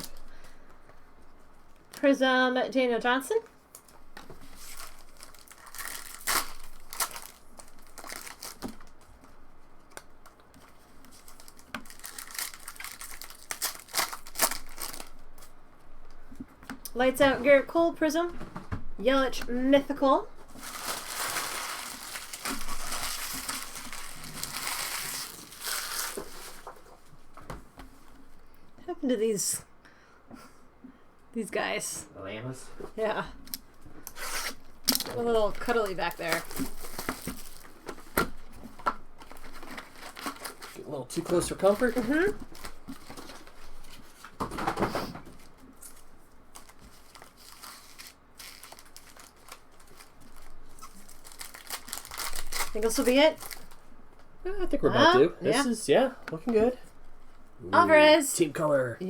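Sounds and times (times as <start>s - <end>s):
foil wrappers crinkling: 0.0s - 0.7s, 3.7s - 15.6s, 19.2s - 27.1s, 33.4s - 44.7s, 45.3s - 54.0s.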